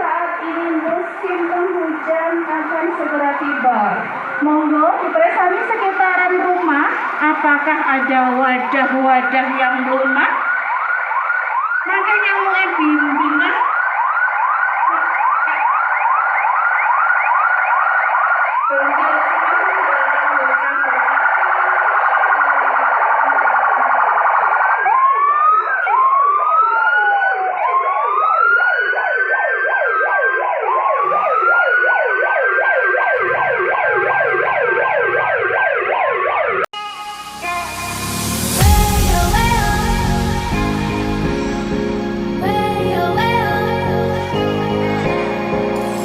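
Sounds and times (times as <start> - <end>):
siren wailing: 0.0 - 46.0
siren yelping: 0.0 - 46.0
music: 36.8 - 46.0.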